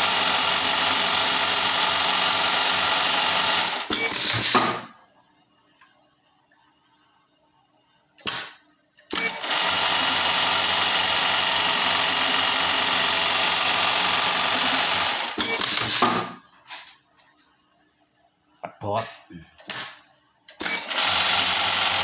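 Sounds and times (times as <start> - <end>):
sewing machine stitching: 0.0 - 4.8, 9.1 - 16.3, 20.6 - 22.0.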